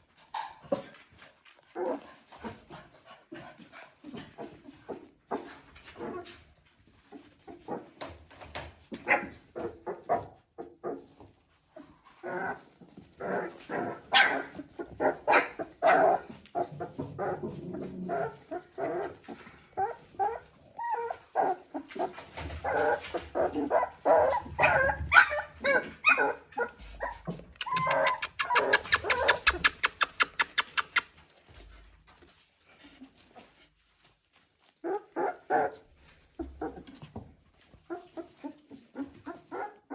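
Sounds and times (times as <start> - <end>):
puppies whimpering and yelping: 12.1 - 31.1, 37.8 - 39.9.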